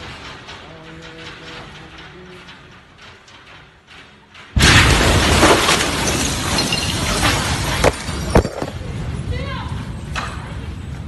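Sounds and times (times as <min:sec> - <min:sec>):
falling debris: 0:00.0 - 0:09.1
sharp crashes: 0:02.7 - 0:09.0
explosion boom: 0:04.6 - 0:08.2
glass shattering: 0:04.6 - 0:08.8.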